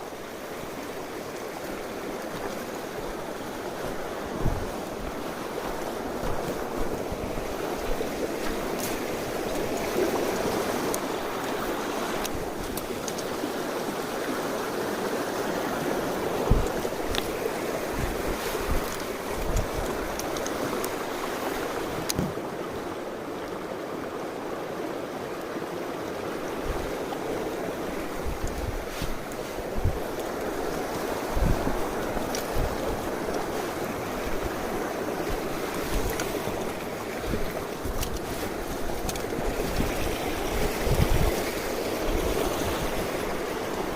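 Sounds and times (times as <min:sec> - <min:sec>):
stream rushing over rocks: 0:00.0 - 0:43.9
low thump: 0:16.5 - 0:16.7.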